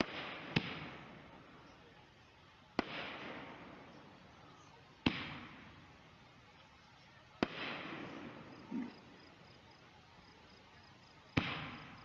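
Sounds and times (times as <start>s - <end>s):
firework hiss: 0.0s - 12.0s
firework shells bursting: 11.3s - 12.0s.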